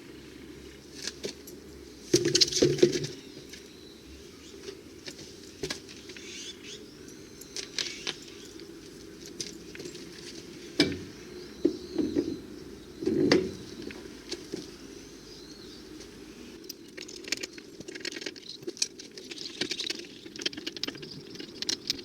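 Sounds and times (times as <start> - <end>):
metal tools clinking: 16.6 - 22.0.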